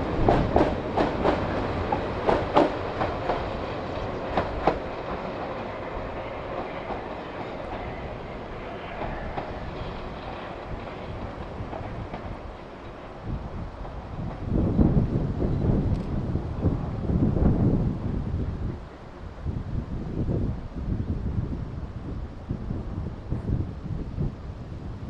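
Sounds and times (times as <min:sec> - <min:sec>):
train wheels clicking over rail joints: 0:00.0 - 0:14.6
train rumble: 0:00.0 - 0:25.0.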